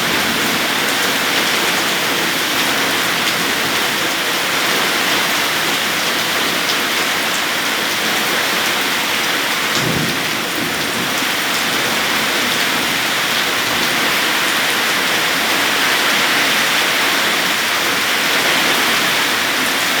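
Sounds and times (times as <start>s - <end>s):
heavy rain pouring: 0.0s - 20.0s
low rumble of thunder: 9.8s - 13.1s.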